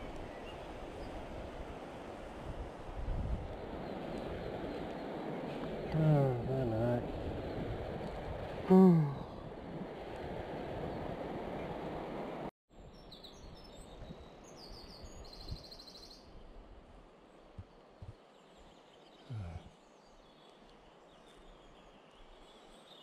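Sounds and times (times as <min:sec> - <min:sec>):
songbirds chirping: 0:00.0 - 0:01.7, 0:03.4 - 0:09.5, 0:12.8 - 0:23.0
outdoor background noise: 0:00.0 - 0:23.0.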